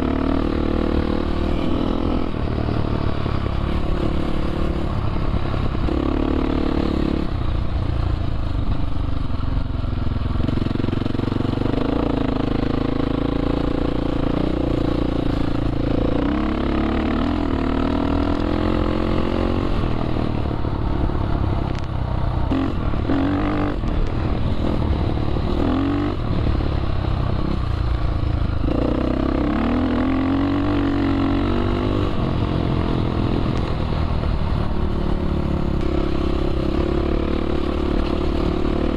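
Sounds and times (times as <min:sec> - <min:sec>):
dirt bike engine revving: 0:10.4 - 0:20.2, 0:28.6 - 0:33.5.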